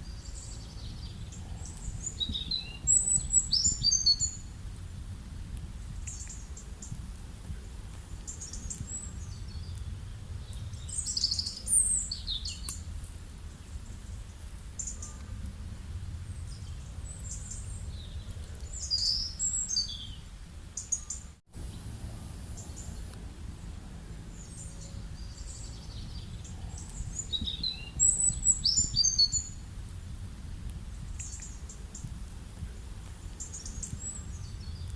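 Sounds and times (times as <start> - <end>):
birds chirping and calling: 0.0 - 4.5, 8.2 - 12.8, 16.4 - 20.2, 24.3 - 29.6
low rumble: 0.0 - 20.6, 21.6 - 34.9.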